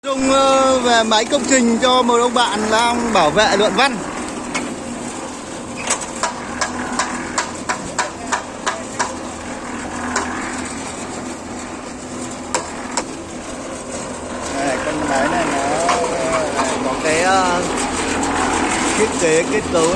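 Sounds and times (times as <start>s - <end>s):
concrete mixer humming: 0.0s - 19.9s
sharp knocks: 5.8s - 9.2s.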